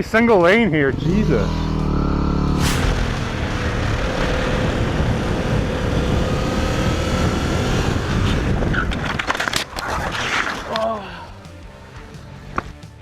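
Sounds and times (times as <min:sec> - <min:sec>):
wind roaring over microphone: 0:02.7 - 0:09.4.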